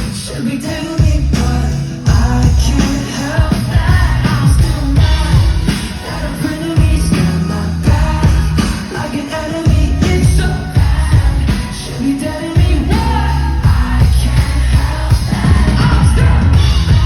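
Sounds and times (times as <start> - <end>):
live pop-rock band playing: 0.0 - 17.0
man singing: 0.0 - 17.0
drum hits: 12.6 - 17.0.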